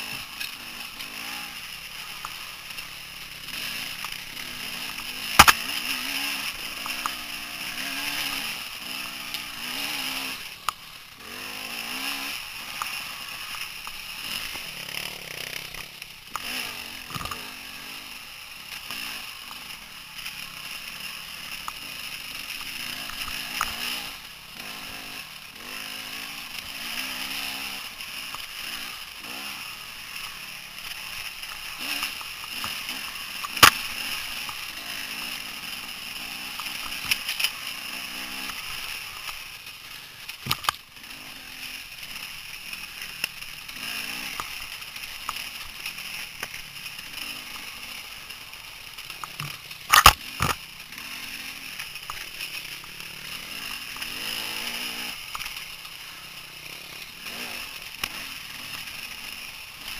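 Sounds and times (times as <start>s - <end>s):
dirt bike engine revving: 0.0s - 59.9s
sharp clicks: 4.8s - 5.8s, 49.1s - 50.6s.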